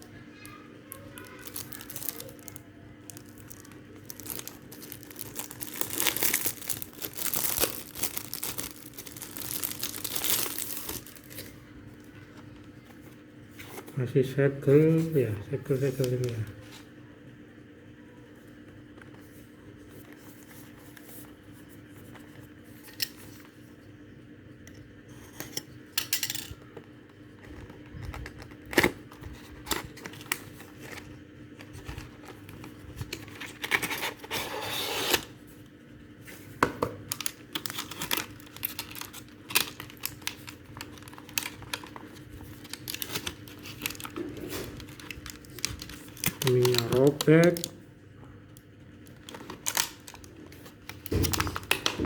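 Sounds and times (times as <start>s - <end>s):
faint steady hum: 0.0s - 52.0s
cardboard tearing: 33.1s - 35.3s.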